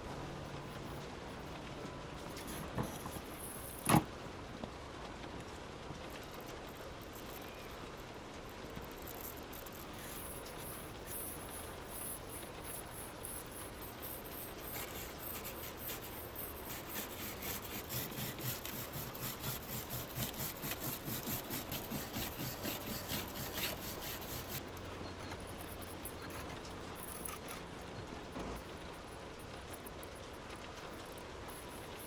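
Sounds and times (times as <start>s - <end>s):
scrubbing on rusted steel: 13.5s - 27.5s.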